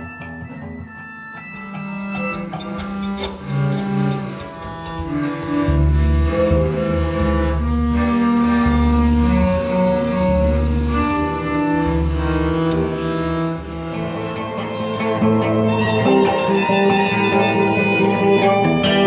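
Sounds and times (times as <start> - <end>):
bowed violin notes: 0.0 - 19.0
short plucked notes: 0.0 - 19.0
acoustic guitar: 13.4 - 19.0.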